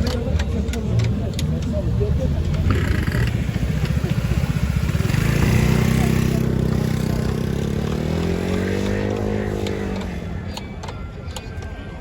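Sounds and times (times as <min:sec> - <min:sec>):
scooter two-stroke engine running: 0:02.5 - 0:10.2.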